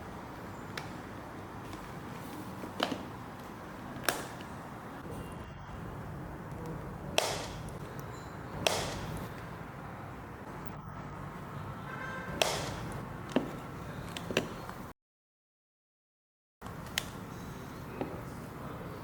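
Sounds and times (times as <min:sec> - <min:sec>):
steady low background noise: 0:00.0 - 0:14.9
plastic clicks and snaps: 0:04.0 - 0:04.5.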